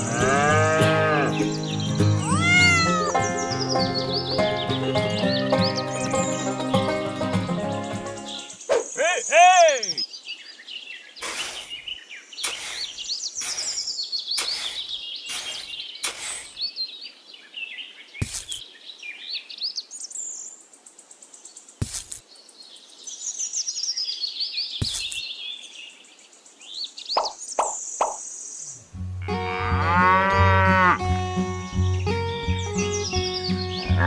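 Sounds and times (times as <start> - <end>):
small birds chirping: 0.0 - 28.9, 31.2 - 34.0
short scuffing noises: 18.2 - 18.6, 24.8 - 25.2.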